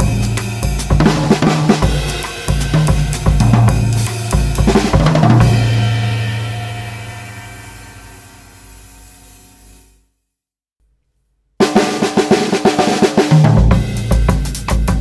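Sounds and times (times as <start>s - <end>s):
snare drum: 0.0s - 6.1s, 11.6s - 15.0s
bass drum: 0.0s - 7.1s, 11.7s - 15.0s
low drum tone ringing: 0.0s - 8.7s
cymbal strokes: 0.0s - 9.9s.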